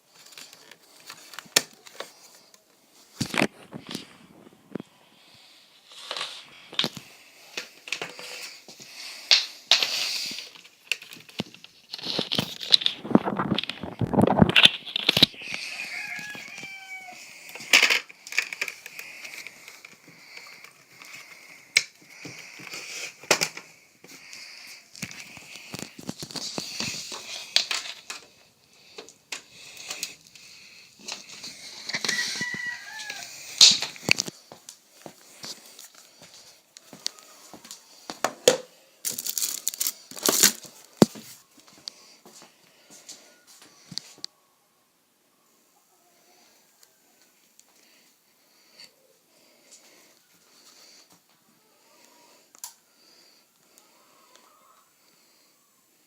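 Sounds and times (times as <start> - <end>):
packaging crinkling and tearing: 9.3 - 15.5, 24.9 - 28.3, 39.0 - 41.4.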